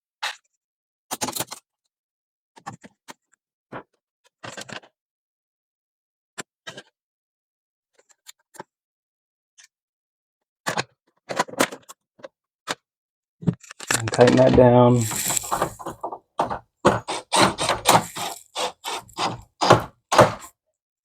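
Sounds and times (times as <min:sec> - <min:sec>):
hand tools snipping wire: 0:13.9 - 0:20.5.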